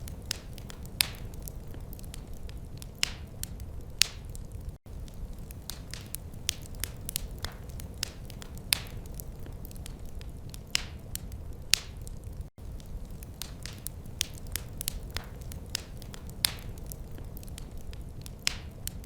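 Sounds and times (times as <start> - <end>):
low rumble of flames: 0.0 - 19.0
wood fire crackling: 0.0 - 19.0.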